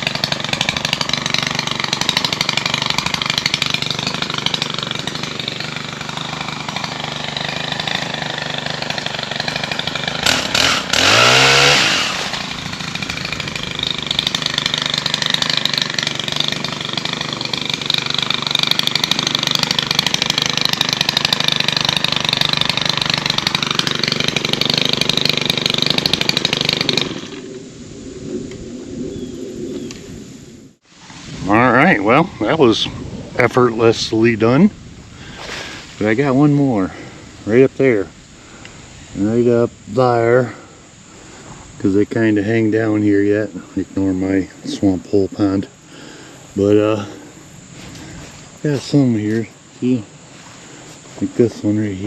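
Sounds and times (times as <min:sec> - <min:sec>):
pole saw cutting tree limbs: 0:00.0 - 0:27.6, 0:41.8 - 0:52.0.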